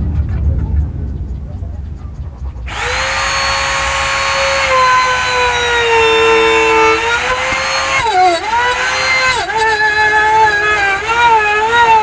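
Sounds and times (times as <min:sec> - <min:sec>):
router cutting wood: 0:02.7 - 0:12.0.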